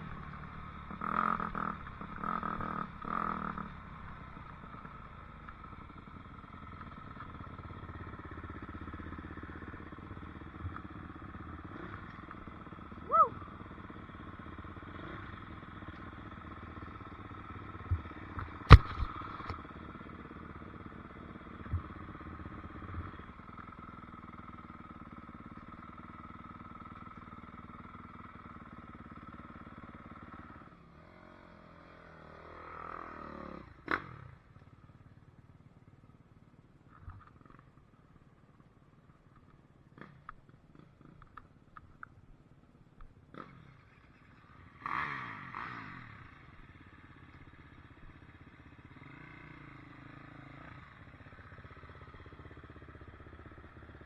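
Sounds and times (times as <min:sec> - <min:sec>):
sharp knocks: 0:18.7 - 0:19.5
dirt bike engine revving: 0:44.8 - 0:46.3.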